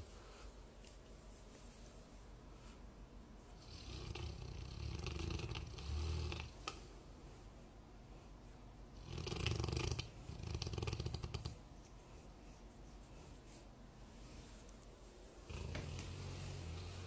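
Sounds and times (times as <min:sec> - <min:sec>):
dog snoring: 0:03.6 - 0:06.6, 0:09.0 - 0:11.6, 0:15.5 - 0:17.0.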